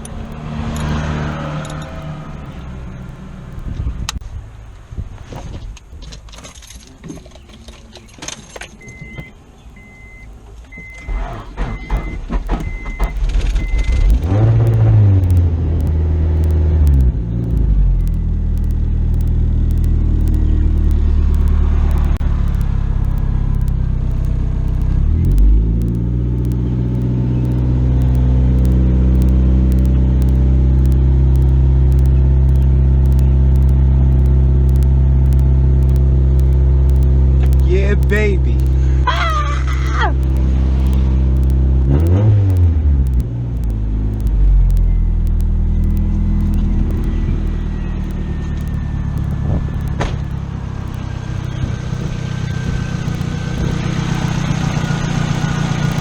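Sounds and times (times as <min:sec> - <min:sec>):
car engine starting and idling: 0:00.0 - 0:56.0
warning chime beeping: 0:10.8 - 0:39.1.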